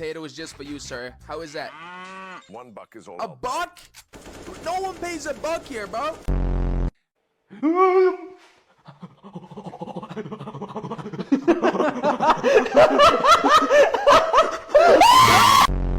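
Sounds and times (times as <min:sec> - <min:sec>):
person crying out: 0:07.5 - 0:08.4, 0:14.8 - 0:15.7
person laughing: 0:07.5 - 0:15.6.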